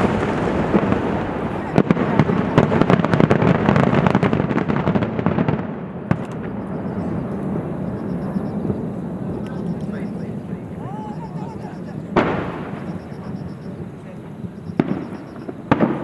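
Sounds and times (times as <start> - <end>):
crackling pops: 0.0 - 10.2, 12.1 - 16.0
firework shell bursting: 11.9 - 16.0.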